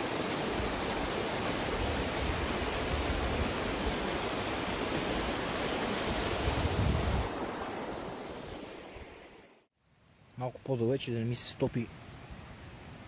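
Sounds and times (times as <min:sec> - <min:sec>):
river water rushing: 0:00.0 - 0:09.6
wind buffeting microphone: 0:00.6 - 0:08.6.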